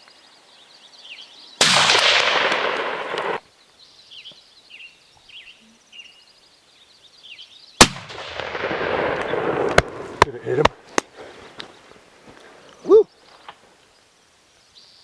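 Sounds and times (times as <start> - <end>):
rifle gunshot: 1.6 - 3.4, 7.8 - 10.7
small birds chirping: 3.5 - 7.8, 10.2 - 15.0.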